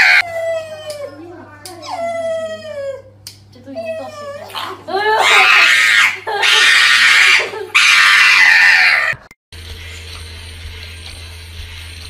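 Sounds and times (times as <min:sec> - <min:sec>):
dog howling: 0:00.0 - 0:01.2, 0:03.8 - 0:09.3.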